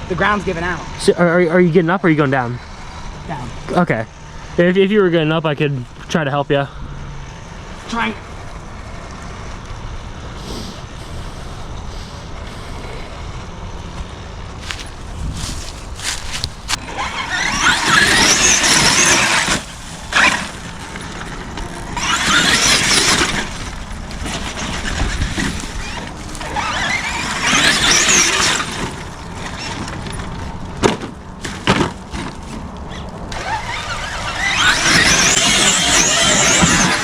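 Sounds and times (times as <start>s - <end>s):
wheels spinning on loose ground: 0.0s - 37.0s
electric motor whining: 10.4s - 29.9s, 33.3s - 37.0s.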